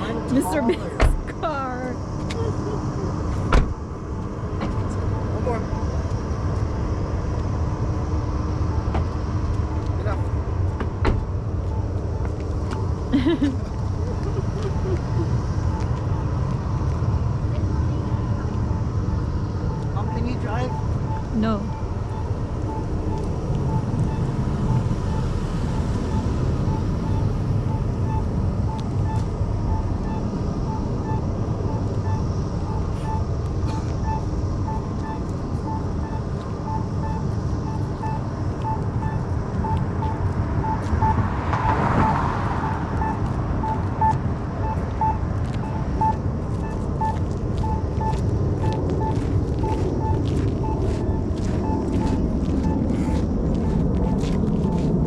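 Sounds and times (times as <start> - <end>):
vehicle rumble: 0.0 - 55.0
short electronic beeps: 11.6 - 16.5, 18.6 - 55.0.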